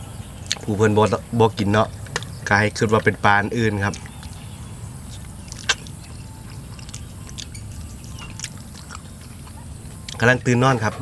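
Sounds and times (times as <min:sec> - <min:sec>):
low background hum: 0:00.0 - 0:11.0
people chewing: 0:01.8 - 0:11.0
sharp mouth smacks: 0:05.1 - 0:06.0.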